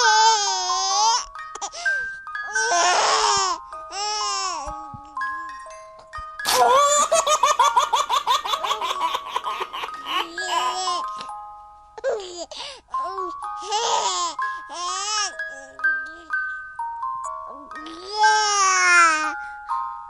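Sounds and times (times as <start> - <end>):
baby squealing and cooing: 0.0 - 1.8, 2.5 - 4.6
soft music with held notes: 0.0 - 20.0
baby laughing rapidly: 6.5 - 11.0.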